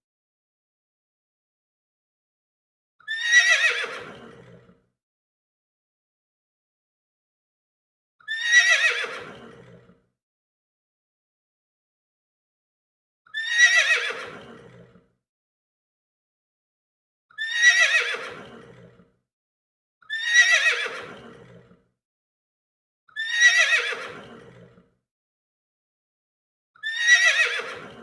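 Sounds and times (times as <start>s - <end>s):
horse whinnying: 3.1s - 4.5s, 8.3s - 9.8s, 13.4s - 14.9s, 17.4s - 19.0s, 20.1s - 21.8s, 23.2s - 24.8s, 26.8s - 28.0s.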